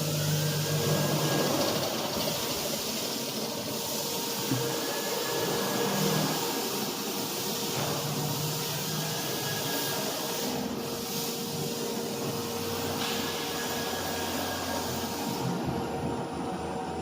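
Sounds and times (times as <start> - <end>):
spindle machine whine: 0.0 - 11.0, 11.6 - 17.0.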